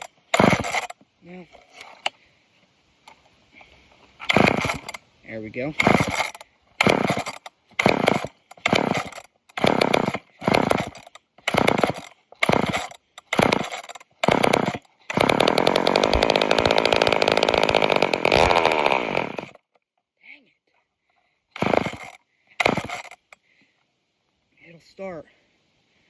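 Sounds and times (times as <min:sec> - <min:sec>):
chainsaw engine sputtering: 0:00.0 - 0:02.1, 0:04.2 - 0:05.0, 0:05.7 - 0:19.6, 0:21.6 - 0:23.4.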